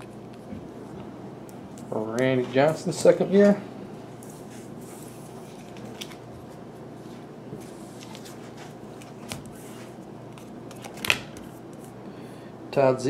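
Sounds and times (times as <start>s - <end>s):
cards being shuffled: 4.9s - 6.6s, 7.6s - 11.9s.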